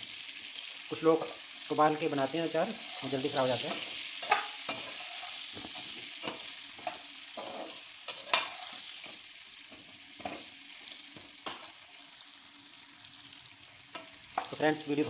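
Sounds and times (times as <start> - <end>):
fruit sizzling in oil: 0.0 - 15.0
metal spatula scraping a pan: 2.8 - 12.0.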